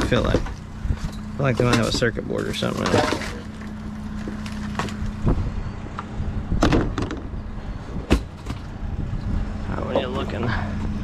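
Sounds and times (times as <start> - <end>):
vehicle engine idling: 0.0 - 6.6.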